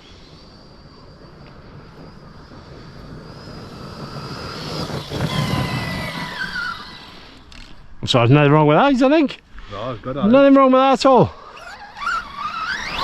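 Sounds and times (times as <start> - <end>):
electric motor whining: 0.0 - 8.0, 10.6 - 13.0
tyres on dirt: 1.3 - 8.0.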